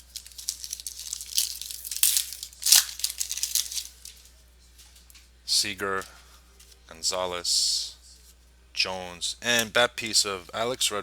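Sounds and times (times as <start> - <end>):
wrapper tearing and crinkling: 0.0 - 4.2.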